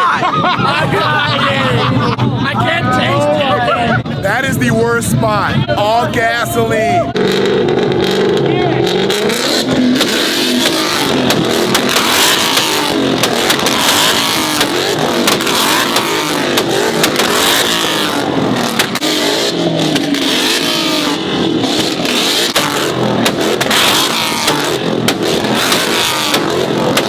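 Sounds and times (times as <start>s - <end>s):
car engines revving: 0.0s - 27.0s
exhaust pops and cracks: 7.2s - 27.0s.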